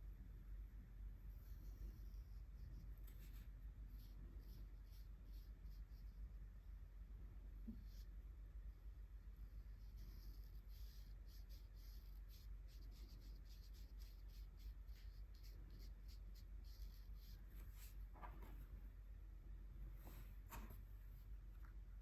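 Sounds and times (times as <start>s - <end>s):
art tool strokes on paper: 9.6s - 18.0s
sharp scratches on paper: 9.6s - 18.0s.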